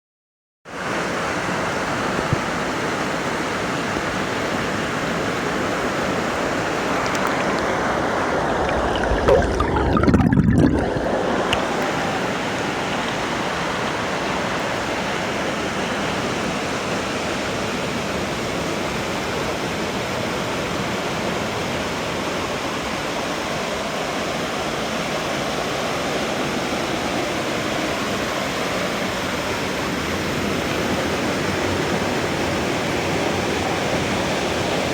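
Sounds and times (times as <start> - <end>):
waterfall roaring: 2.6 - 18.8.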